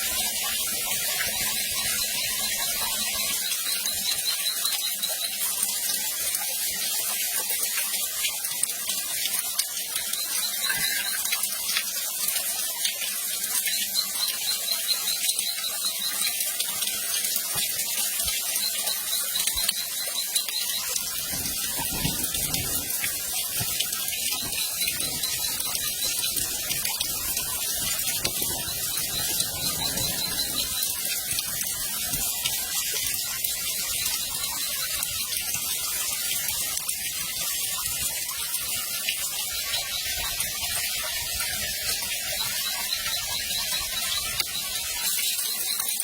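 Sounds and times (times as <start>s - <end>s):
rapid high-pitched chirping: 1.0s - 5.7s, 9.9s - 11.8s, 13.4s - 17.0s, 17.8s - 35.9s, 39.4s - 46.0s.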